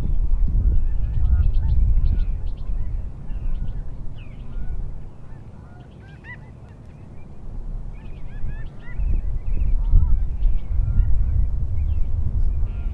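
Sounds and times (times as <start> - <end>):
low rumble: 0.0 - 5.1
birds calling: 0.1 - 12.9.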